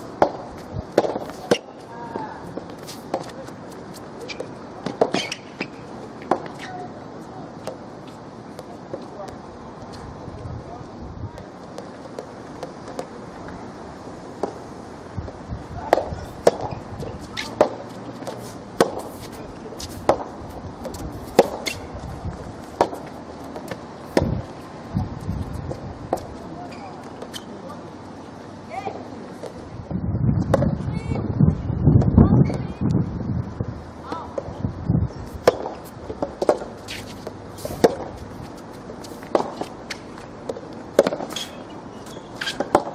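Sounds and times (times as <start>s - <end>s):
rackets hitting tennis ball: 0.0s - 6.8s, 15.8s - 24.9s, 35.4s - 42.9s.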